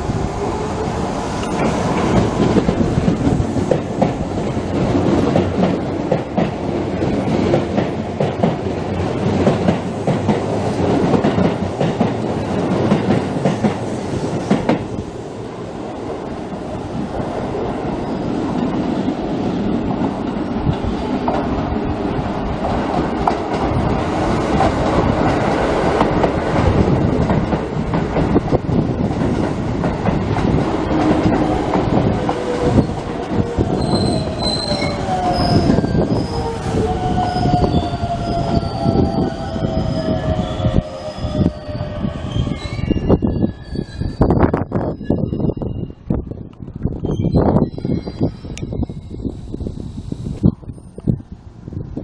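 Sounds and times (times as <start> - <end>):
train wheels rumbling on rails: 0.0 - 52.0
wheel squeals: 33.8 - 46.0, 47.0 - 49.4.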